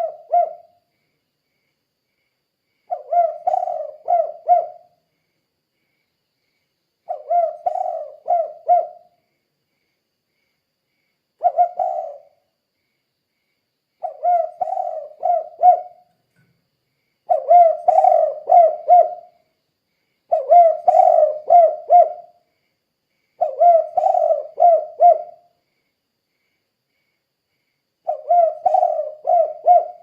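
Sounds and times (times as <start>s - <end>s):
dove cooing: 0.0s - 0.8s, 2.9s - 5.0s, 7.1s - 9.2s, 11.4s - 12.4s, 14.0s - 16.1s, 17.3s - 19.3s, 20.3s - 22.4s, 23.4s - 25.4s, 28.0s - 30.0s.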